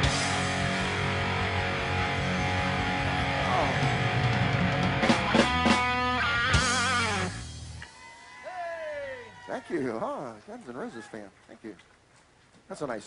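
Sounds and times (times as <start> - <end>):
lead guitar with vibrato bends: 0.0 - 7.9
live rock band playing: 0.0 - 8.1.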